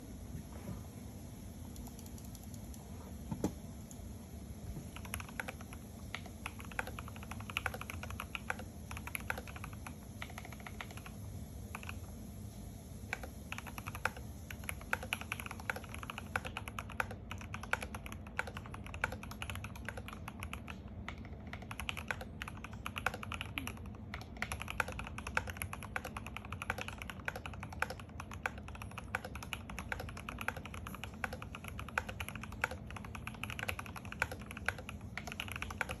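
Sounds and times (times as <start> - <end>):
mechanical keyboard typing: 1.7 - 2.8, 4.9 - 12.1, 13.1 - 36.0.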